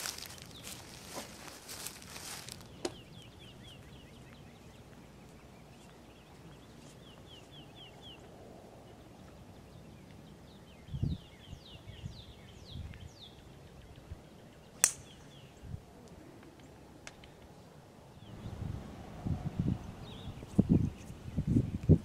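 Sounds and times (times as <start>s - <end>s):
rustling: 0.0s - 3.0s
songbird chirping: 0.0s - 18.8s, 19.4s - 22.0s
sharp click: 14.8s - 15.2s.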